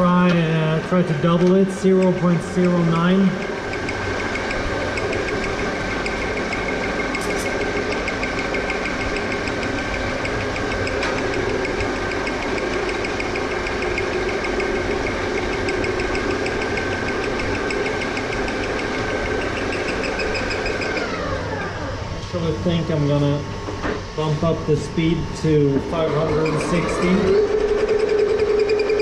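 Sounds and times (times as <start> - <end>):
lathe milling whine and hum: 0.0 - 29.0
rapid knocking from cutter: 1.4 - 21.0.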